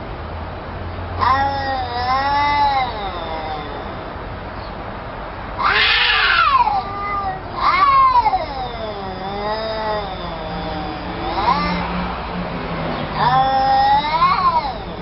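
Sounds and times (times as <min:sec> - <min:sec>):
cat screeching: 0:01.2 - 0:04.1, 0:05.6 - 0:12.2, 0:13.1 - 0:15.0
cats yowling: 0:01.2 - 0:04.2, 0:05.6 - 0:12.3, 0:13.0 - 0:15.0.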